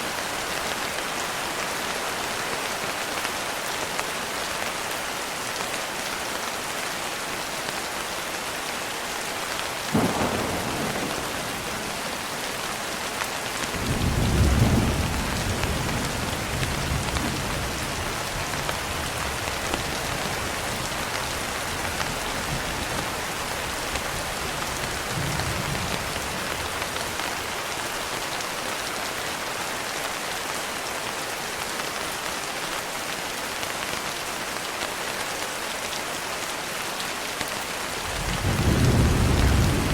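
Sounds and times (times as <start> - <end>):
rain on a window: 0.0 - 39.9
thunder crack: 9.9 - 12.4
thunder rumbling: 9.9 - 12.8, 13.6 - 18.9, 38.1 - 39.9.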